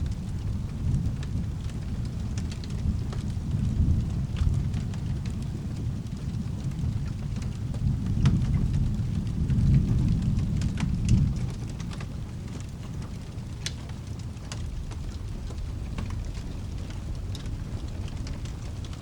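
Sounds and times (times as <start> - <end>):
fireplace crackles: 0.0 - 19.0
low rolling thunder: 0.0 - 19.0
steady rain: 0.0 - 19.0.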